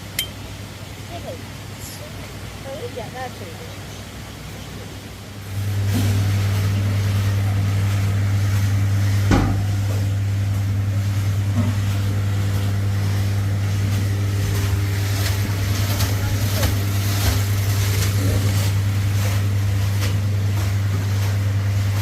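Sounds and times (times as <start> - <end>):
motor humming: 5.3 - 22.0.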